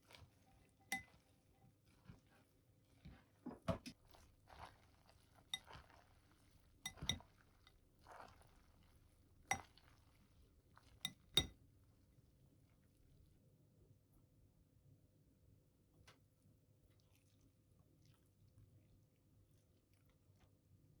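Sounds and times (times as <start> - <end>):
soft squelching and scraping: 0.0 - 11.5, 16.0 - 20.8
utensil clinking against bowl: 0.9 - 1.1, 5.5 - 6.0, 6.9 - 7.3, 9.5 - 9.8, 11.0 - 11.6.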